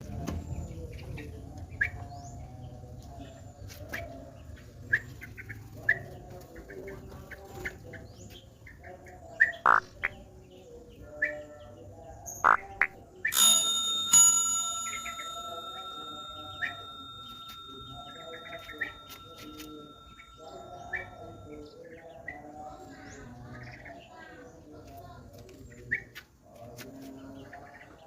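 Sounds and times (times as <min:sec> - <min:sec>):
birds chirping: 0:00.4 - 0:25.0.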